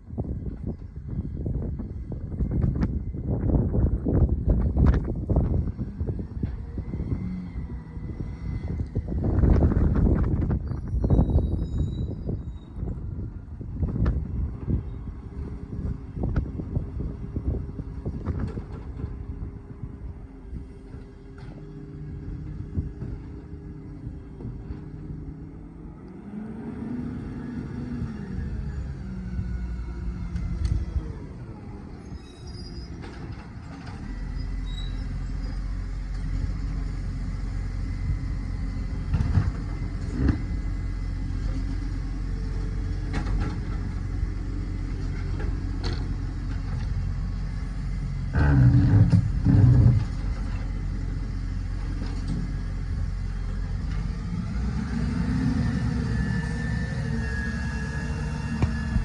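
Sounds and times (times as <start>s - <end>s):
garbage truck droning: 3.0s - 59.0s
rising whine: 53.8s - 59.0s.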